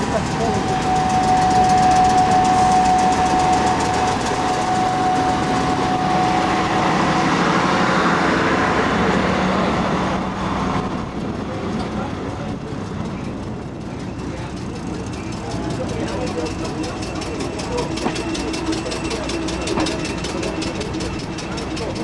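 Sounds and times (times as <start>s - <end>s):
train rolling past: 0.0s - 22.0s
thin steady whine: 0.3s - 7.8s.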